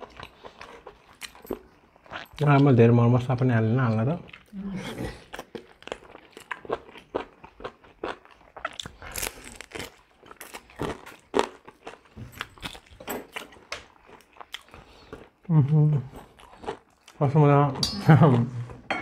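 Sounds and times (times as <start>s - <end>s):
chewing mouth clicks and smacks: 0.0s - 2.7s, 5.2s - 15.4s.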